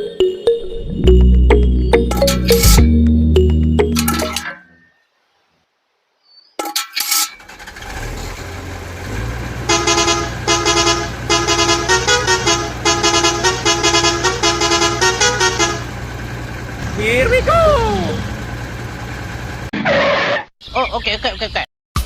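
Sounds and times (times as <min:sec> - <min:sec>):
clicks: 0:01.2 - 0:04.6
low engine rumble: 0:08.6 - 0:19.7
vehicle horn honking: 0:09.7 - 0:16.0.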